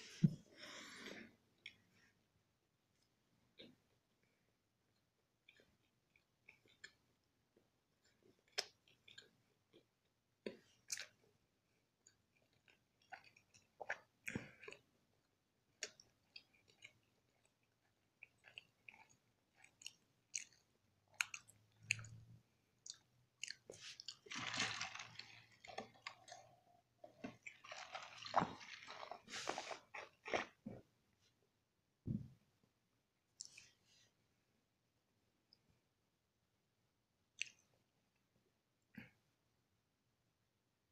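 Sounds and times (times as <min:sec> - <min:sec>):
person chewing food: 0:04.9 - 0:30.9, 0:33.4 - 0:33.8, 0:37.3 - 0:37.8.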